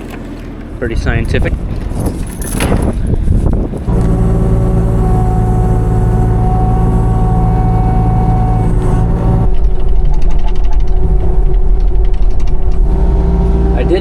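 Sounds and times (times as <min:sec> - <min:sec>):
excavator diesel engine running: 0:02.9 - 0:14.0
thin steady whine: 0:03.8 - 0:14.0.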